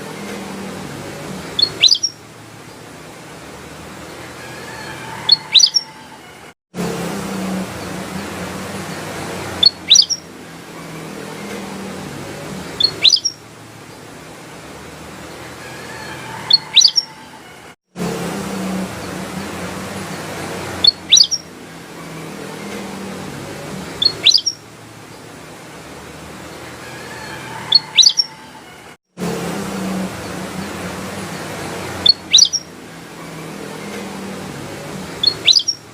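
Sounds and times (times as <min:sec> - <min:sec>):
bird chirping phrases: 0:01.1 - 0:02.9, 0:05.0 - 0:06.2, 0:07.8 - 0:14.1, 0:16.3 - 0:17.3, 0:19.1 - 0:23.0, 0:23.6 - 0:24.6, 0:27.3 - 0:28.5, 0:31.4 - 0:35.9
bird whistled calls: 0:01.6 - 0:02.2, 0:05.1 - 0:06.0, 0:09.6 - 0:10.2, 0:12.8 - 0:13.4, 0:16.4 - 0:17.2, 0:20.8 - 0:21.5, 0:24.0 - 0:24.6, 0:27.6 - 0:28.4, 0:32.0 - 0:32.7, 0:35.2 - 0:35.8.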